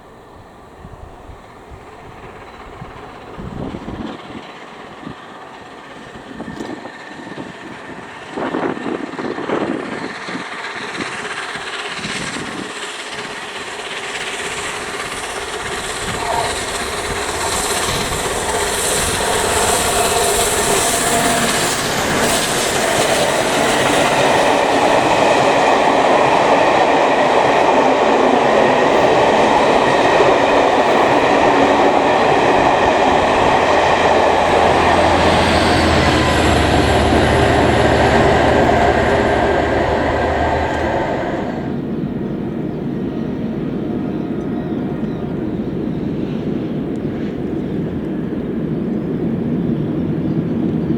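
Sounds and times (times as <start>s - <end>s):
train wheels clattering over rails: 0.0s - 42.1s
low hum: 31.7s - 41.9s.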